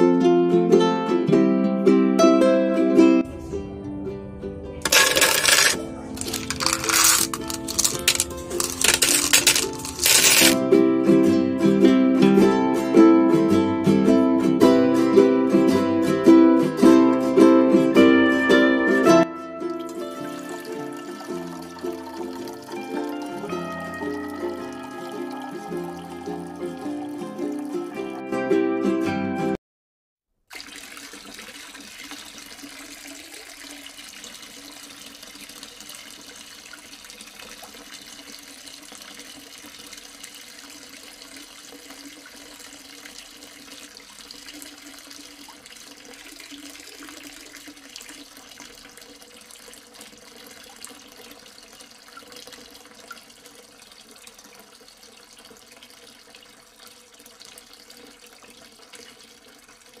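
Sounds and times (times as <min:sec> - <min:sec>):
fountain water trickling: 0:04.9 - 0:10.7, 0:19.6 - 0:28.2, 0:30.5 - 1:00.0.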